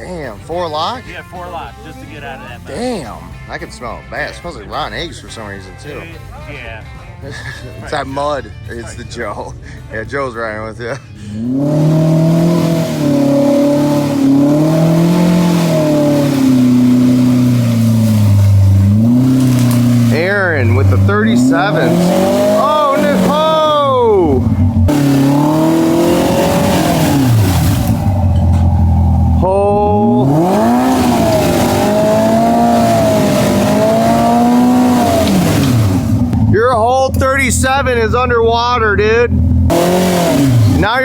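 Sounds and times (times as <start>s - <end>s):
utility vehicle engine revving: 11.1s - 41.0s
tires spinning in mud: 11.3s - 41.0s.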